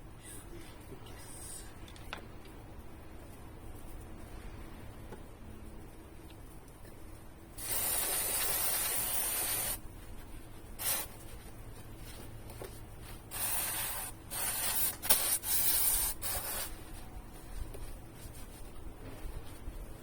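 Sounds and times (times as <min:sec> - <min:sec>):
aerosol spray can hissing: 0:07.6 - 0:09.8, 0:10.8 - 0:11.1, 0:13.3 - 0:16.7.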